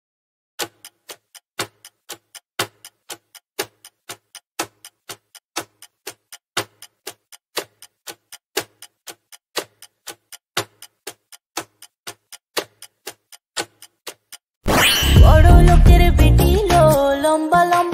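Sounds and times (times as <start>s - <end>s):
clock ticking: 0.6s - 14.4s.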